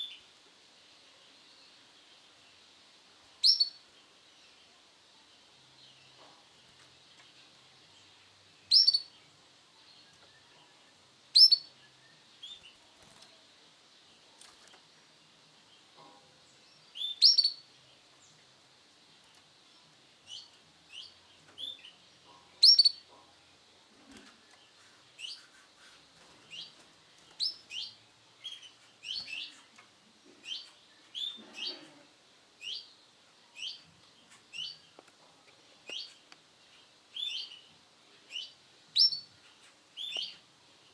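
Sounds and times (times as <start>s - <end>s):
canary chirping: 3.4s - 3.8s, 5.7s - 32.0s, 38.3s - 40.4s.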